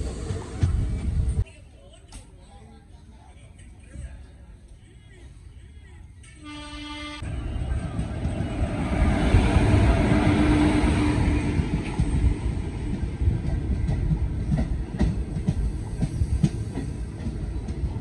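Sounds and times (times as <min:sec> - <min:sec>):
train rumble: 0:00.0 - 0:01.5, 0:06.2 - 0:18.0
electric locomotive humming: 0:05.8 - 0:18.0.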